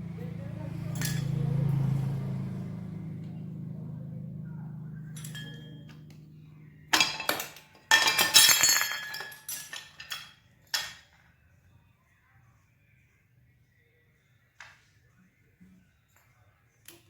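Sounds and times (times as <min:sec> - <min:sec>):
low engine hum: 0:00.0 - 0:07.0
hard objects clinking: 0:01.0 - 0:01.4, 0:05.0 - 0:06.1, 0:06.9 - 0:11.2.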